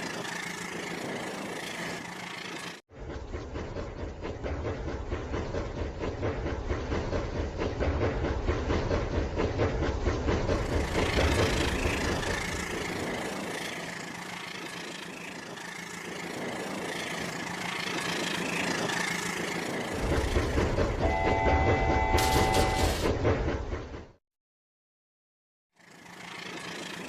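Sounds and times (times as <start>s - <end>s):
toy train clattering hum: 10.5s - 23.1s, 25.8s - 27.0s
electronic horn tone: 21.0s - 23.1s.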